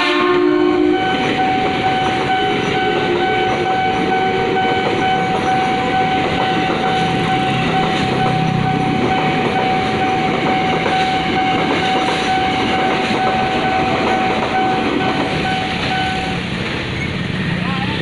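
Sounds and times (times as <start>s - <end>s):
crossing warning signal tone: 0.0s - 17.2s
train wheels clattering on rails: 0.8s - 18.0s.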